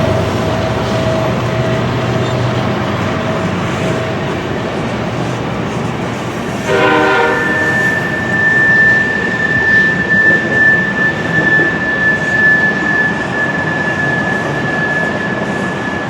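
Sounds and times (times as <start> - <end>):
freight train rumbling by: 0.0 - 16.0
high steady whine: 6.0 - 16.0
locomotive horn blast: 6.6 - 9.1.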